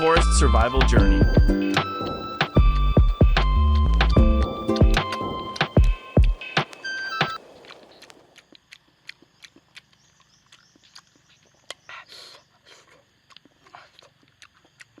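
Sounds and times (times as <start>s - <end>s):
campfire crackling: 0.0s - 9.2s.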